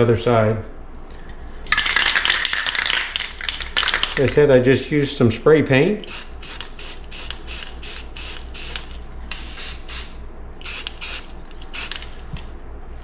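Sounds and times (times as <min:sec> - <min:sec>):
spray paint can hissing bursts: 0:06.0 - 0:12.1.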